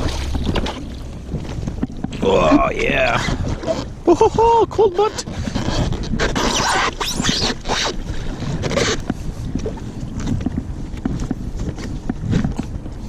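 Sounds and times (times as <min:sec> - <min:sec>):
paddle splashing in water: 0:00.0 - 0:04.5
low microphone rumble: 0:00.0 - 0:13.0.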